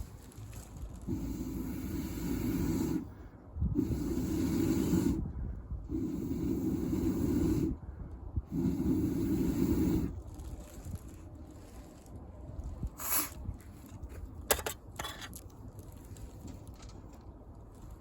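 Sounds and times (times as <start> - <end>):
person blowing strong breaths: 1.0 - 10.9, 12.9 - 13.5.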